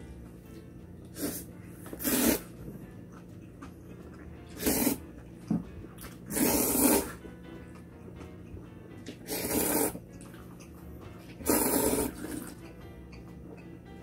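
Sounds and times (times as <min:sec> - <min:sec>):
soft background music: 0:00.0 - 0:14.0
person slurping noodles: 0:01.1 - 0:02.5, 0:04.5 - 0:05.0, 0:06.3 - 0:07.2, 0:09.2 - 0:10.0, 0:11.4 - 0:12.5.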